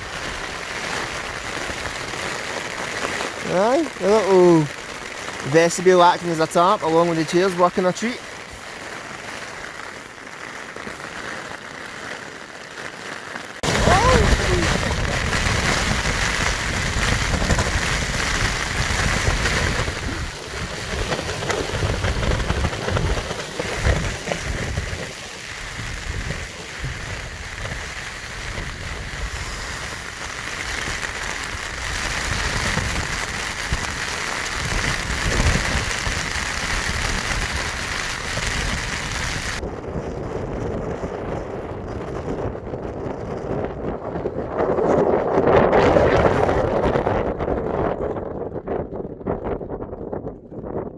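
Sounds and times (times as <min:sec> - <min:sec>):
heavy rain hissing: 0:00.0 - 0:39.6
wind buffeting microphone: 0:13.6 - 0:50.9.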